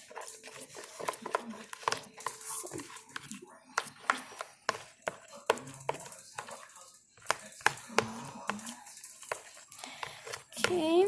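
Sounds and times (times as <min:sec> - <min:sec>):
spoon stirring slime: 0:00.0 - 0:11.0.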